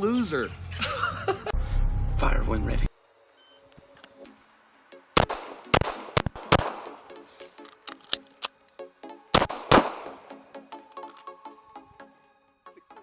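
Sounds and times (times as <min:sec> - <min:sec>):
pistol shots: 0:05.2 - 0:07.2, 0:09.3 - 0:10.4
pistol reload: 0:05.2 - 0:08.8, 0:09.4 - 0:11.3.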